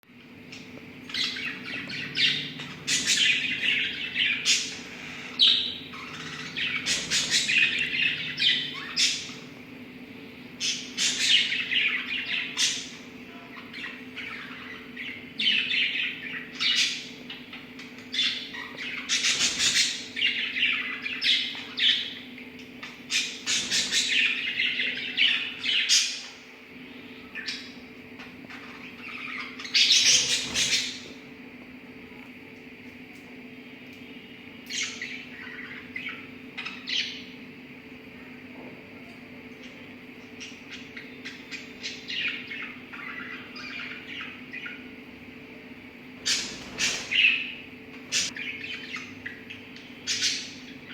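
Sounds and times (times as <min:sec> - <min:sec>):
lovebirds chirping and squawking: 0:00.2 - 0:09.6, 0:10.3 - 0:31.4, 0:34.0 - 0:37.4, 0:39.6 - 0:45.4, 0:46.0 - 0:50.9.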